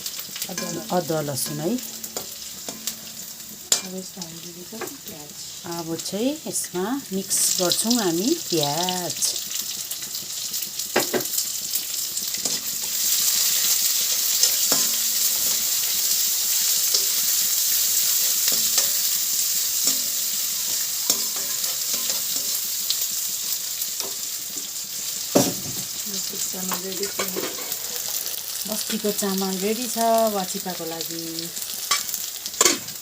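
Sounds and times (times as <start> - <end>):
onion sizzling in oil: 0.0 - 33.0
spoon scraping and knocking pan: 0.4 - 3.9, 12.4 - 12.7, 13.4 - 16.0, 18.2 - 19.2, 19.8 - 22.6, 26.7 - 28.2.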